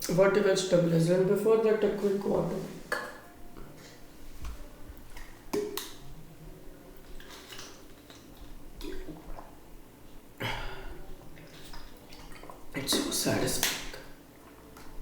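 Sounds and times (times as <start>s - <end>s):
person gulping water: 7.1s - 9.6s, 10.4s - 14.1s.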